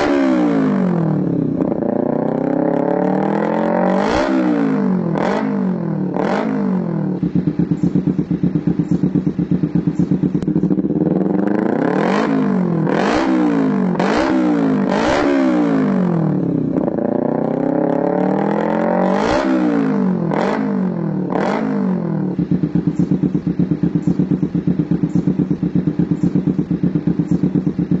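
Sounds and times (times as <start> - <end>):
motorcycle engine idling and revving: 0.0 - 28.0.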